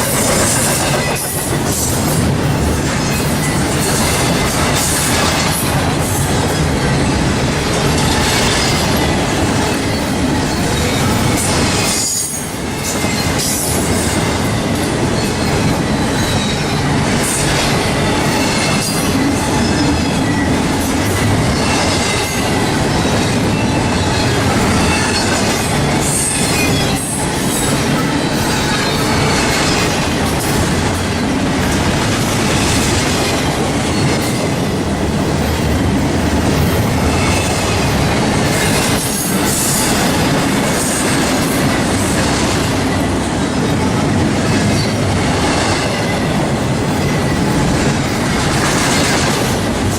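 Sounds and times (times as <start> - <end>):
train wheels clicking over rail joints: 0.0 - 49.9.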